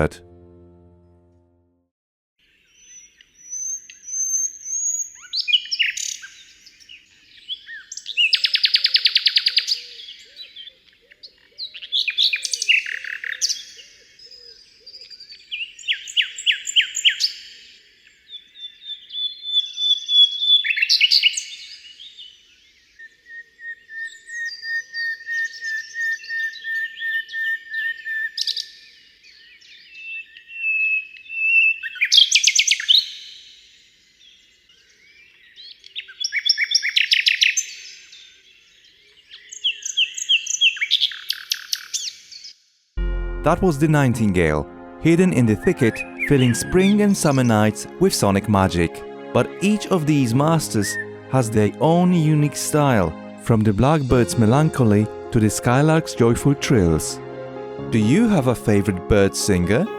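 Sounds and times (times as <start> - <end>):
nightingale singing: 39.2 - 42.5, 45.2 - 48.4.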